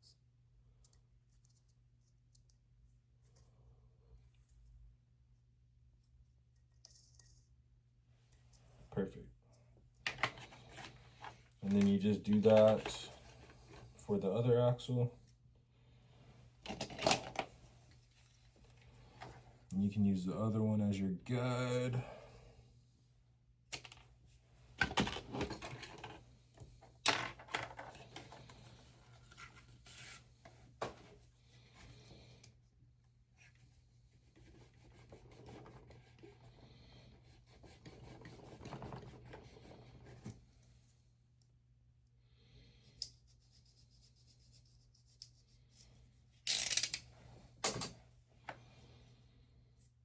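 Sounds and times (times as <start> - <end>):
scraping rub of model parts: 28.1 - 32.1
small parts clicking: 46.5 - 47.1.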